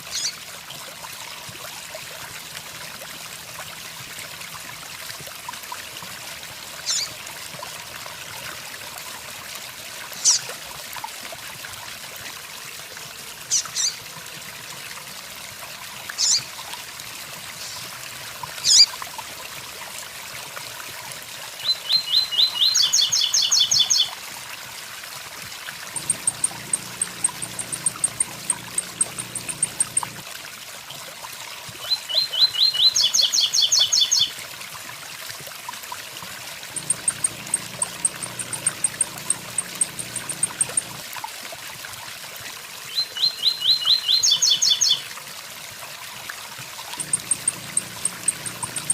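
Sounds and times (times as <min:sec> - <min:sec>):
bird singing clipped notes: 0:26.0 - 0:30.2, 0:36.8 - 0:41.0, 0:47.0 - 0:48.9
very high ticking bird notes: 0:26.0 - 0:30.2, 0:36.7 - 0:41.0, 0:47.0 - 0:48.9.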